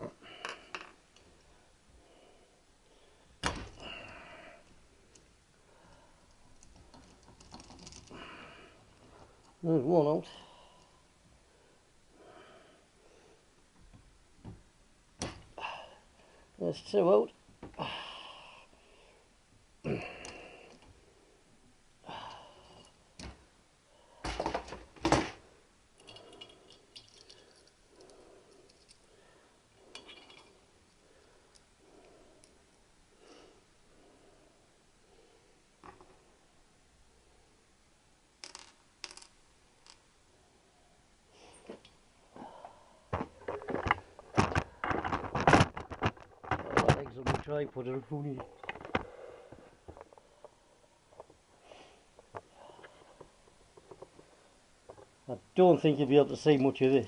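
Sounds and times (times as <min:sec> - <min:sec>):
metal parts clinking and scraping: 0:26.0 - 0:27.8, 0:29.9 - 0:30.6.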